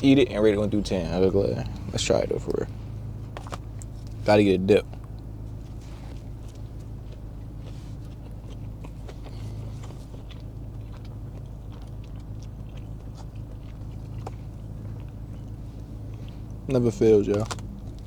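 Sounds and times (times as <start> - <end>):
steady low hum: 0.0 - 18.0
chewing sandwich: 4.8 - 18.0
crunches of biting: 6.2 - 16.6.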